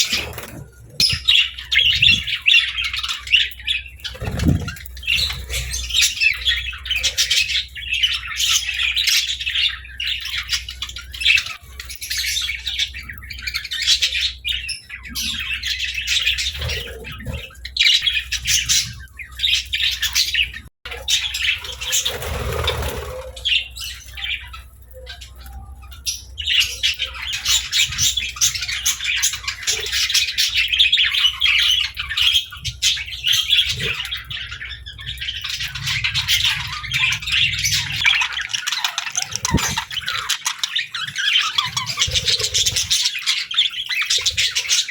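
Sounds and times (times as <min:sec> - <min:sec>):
budgerigars chirping: 0:26.1 - 0:44.9.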